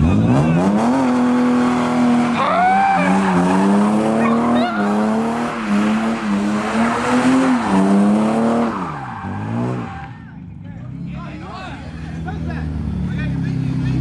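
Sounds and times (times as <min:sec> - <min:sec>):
car engine high revs: 0:00.0 - 0:10.3
tyres squealing: 0:00.2 - 0:10.3.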